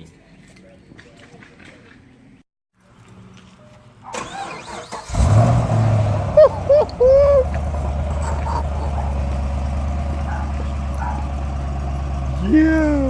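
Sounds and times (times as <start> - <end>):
car engine starting and idling: 4.0 - 13.0.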